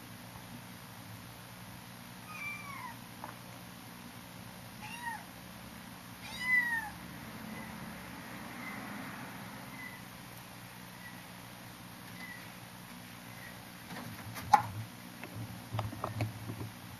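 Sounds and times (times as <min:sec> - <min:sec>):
kitten meowing: 0:02.2 - 0:03.0, 0:04.8 - 0:05.3, 0:06.2 - 0:07.0.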